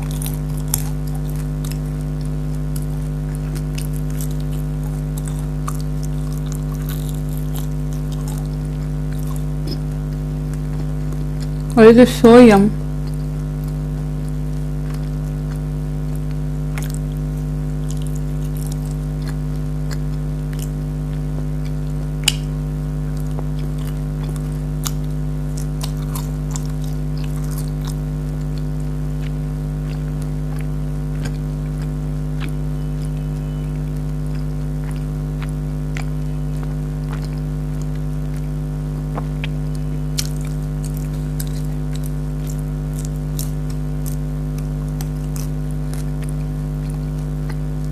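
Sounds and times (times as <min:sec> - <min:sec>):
biting and chewing: 0:00.0 - 0:11.8, 0:12.9 - 0:47.9
electrical hum: 0:00.0 - 0:47.9.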